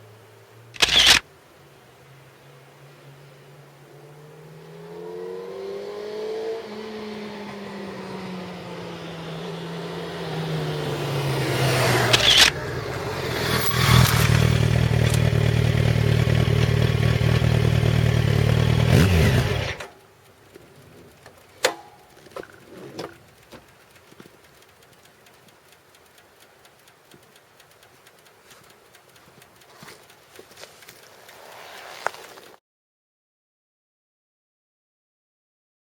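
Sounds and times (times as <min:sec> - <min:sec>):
sharp clicks: 0:00.8 - 0:01.2, 0:11.7 - 0:12.7, 0:13.4 - 0:17.4, 0:18.6 - 0:32.6
motorcycle engine running: 0:04.1 - 0:31.5.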